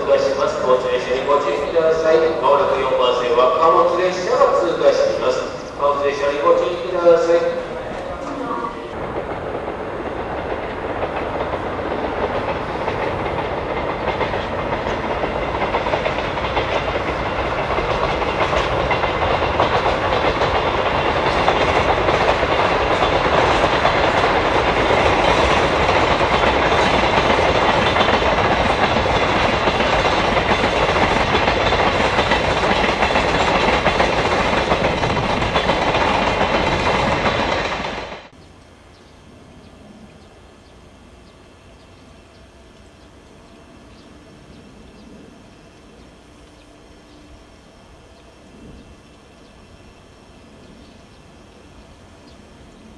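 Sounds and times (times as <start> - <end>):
train wheels clattering over rail joints: 9.0 - 38.3.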